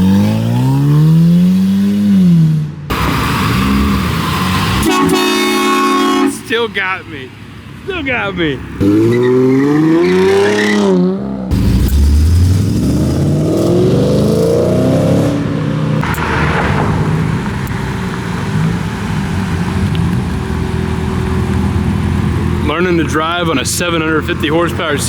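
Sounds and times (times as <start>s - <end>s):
car engine accelerating: 8.6s - 25.0s.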